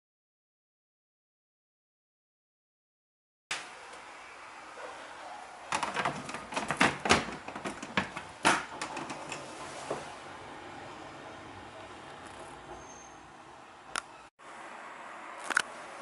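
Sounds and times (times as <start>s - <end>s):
hard objects clicking and knocking: 5.7s - 9.4s.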